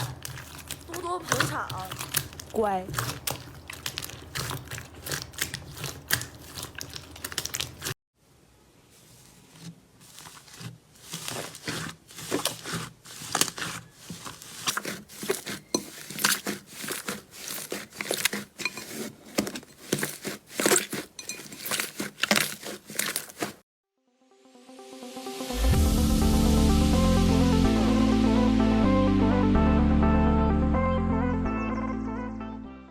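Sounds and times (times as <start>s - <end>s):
slime squeezed crackling and popping: 0.0s - 7.9s.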